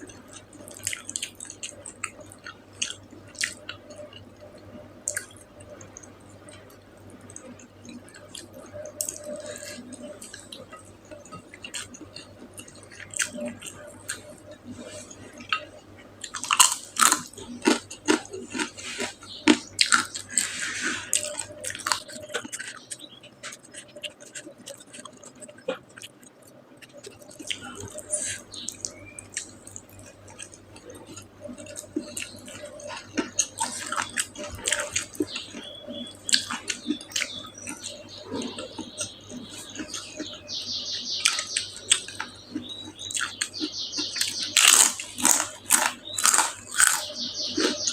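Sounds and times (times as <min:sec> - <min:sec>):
person chewing and biting: 0:15.4 - 0:27.6, 0:28.2 - 0:40.4, 0:41.3 - 0:47.9.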